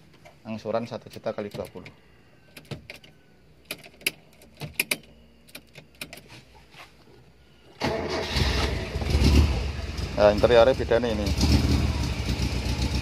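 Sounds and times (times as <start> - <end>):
car engine starting and running: 7.8 - 13.0.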